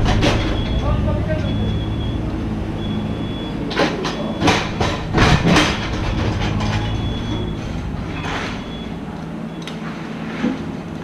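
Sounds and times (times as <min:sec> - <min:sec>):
harsh scraping or clanking: 0:00.0 - 0:01.8, 0:03.7 - 0:09.2
excavator diesel engine running: 0:00.0 - 0:11.0.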